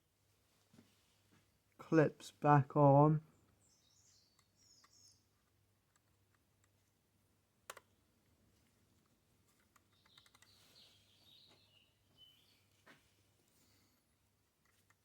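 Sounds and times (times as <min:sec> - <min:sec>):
faint bird chirps: 0:03.3 - 0:05.6, 0:09.8 - 0:12.8
small parts clicking and tapping: 0:04.4 - 0:06.8, 0:09.0 - 0:10.6.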